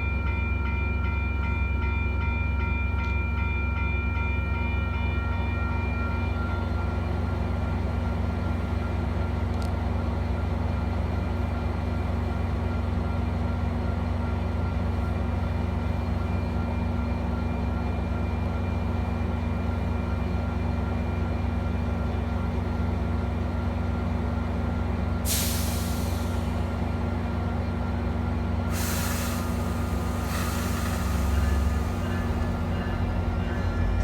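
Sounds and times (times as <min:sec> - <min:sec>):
diesel locomotive idling: 0:00.0 - 0:34.0
air brake hisses: 0:25.3 - 0:26.8, 0:28.7 - 0:32.6.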